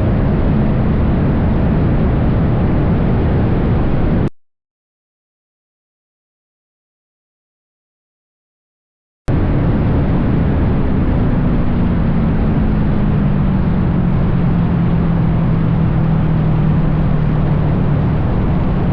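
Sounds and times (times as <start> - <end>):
dense rushing noise: 0.0 - 4.3, 9.3 - 18.9
motorcycle engine running: 9.4 - 18.9.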